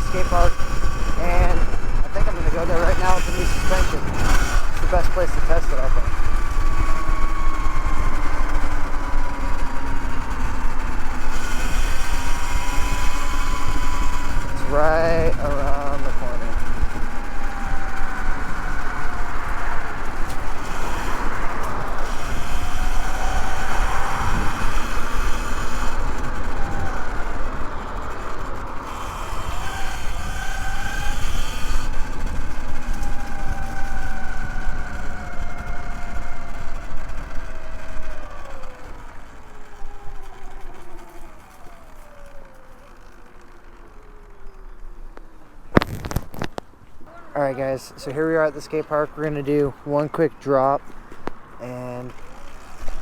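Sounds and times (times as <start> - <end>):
wind on microphone: 0.0 - 42.3
electric motor whining: 0.0 - 53.0.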